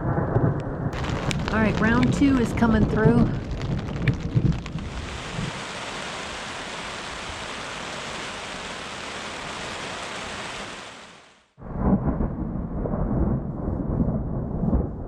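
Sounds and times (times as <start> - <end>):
heavy rain on tent: 0.9 - 11.6.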